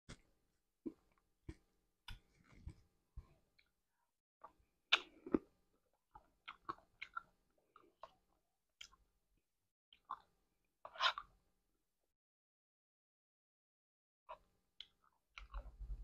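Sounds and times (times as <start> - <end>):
person chewing: 4.4 - 9.1.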